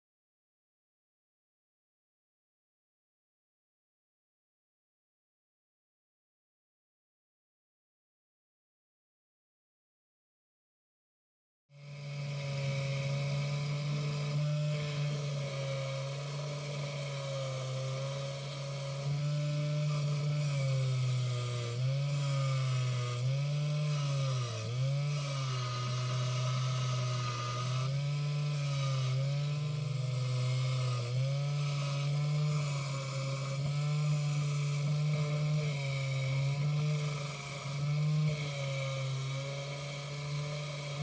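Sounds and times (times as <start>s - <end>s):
small electric motor running: 11.8s - 41.0s.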